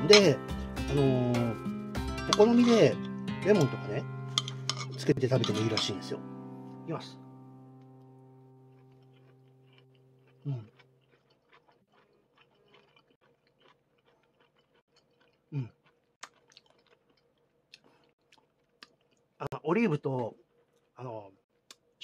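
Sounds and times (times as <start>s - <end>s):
man chewing: 7.9s - 19.4s, 20.4s - 22.0s
man humming approval: 10.4s - 10.7s.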